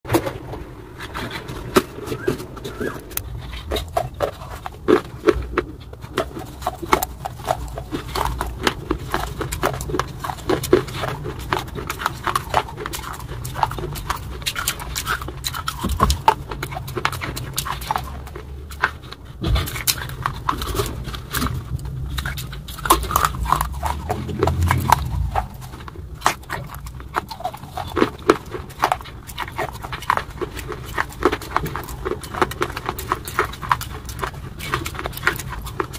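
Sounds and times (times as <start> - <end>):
chewing crunchy wafers: 0.1 - 35.9
wet mouth sounds: 1.0 - 35.9.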